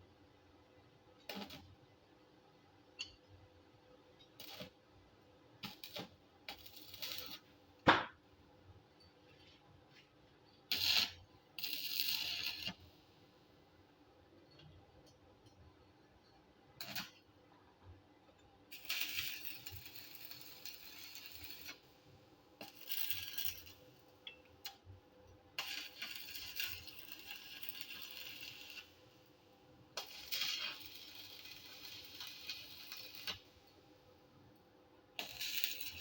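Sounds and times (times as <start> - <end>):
arc welding crackling: 1.2 - 1.7, 4.2 - 4.8, 5.6 - 7.5, 10.7 - 12.9, 16.8 - 17.2, 18.7 - 22.0, 22.6 - 24.8, 25.5 - 33.8, 35.2 - 36.0.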